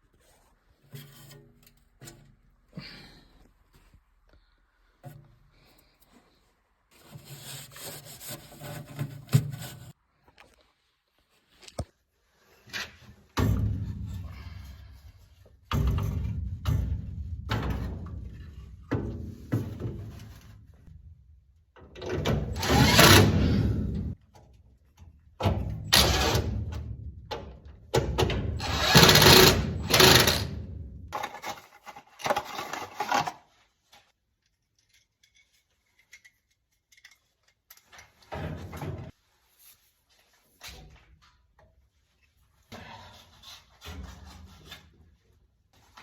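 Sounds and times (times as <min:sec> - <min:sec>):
power tool bursts: 0:22.6 - 0:23.8, 0:25.9 - 0:26.5, 0:28.6 - 0:30.6.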